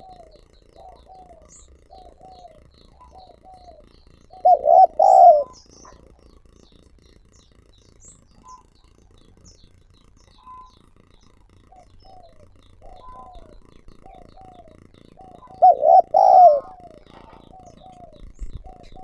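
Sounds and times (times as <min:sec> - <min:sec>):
dove cooing: 0:00.0 - 0:06.3, 0:10.3 - 0:19.0
small birds chirping: 0:00.0 - 0:19.0.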